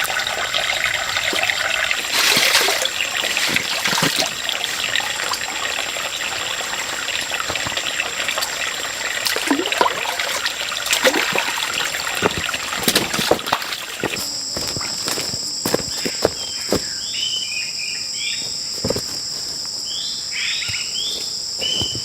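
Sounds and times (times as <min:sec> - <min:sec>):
water trickling and splashing: 0:00.0 - 0:16.9
insects buzzing: 0:00.0 - 0:22.0.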